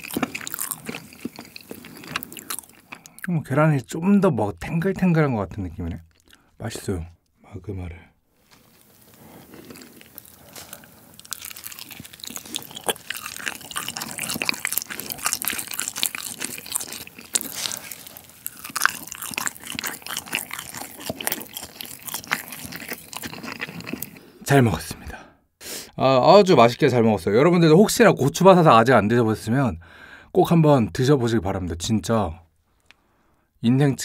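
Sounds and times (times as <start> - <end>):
chewing with crunches: 0.0 - 3.3, 6.0 - 6.4, 8.7 - 24.4.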